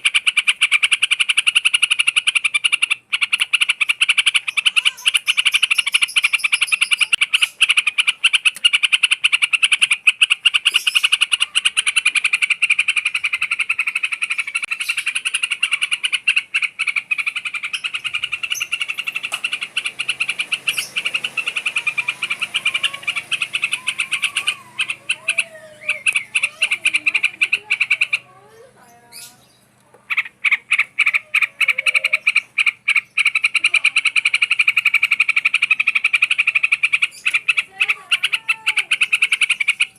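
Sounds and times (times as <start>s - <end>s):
high-pitched animal trill: 17.9s - 29.3s, 30.9s - 32.4s.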